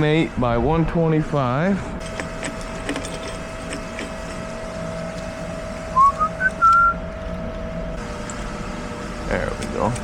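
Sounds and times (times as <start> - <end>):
steady hum: 0.0 - 10.0
person whistling: 5.9 - 7.0.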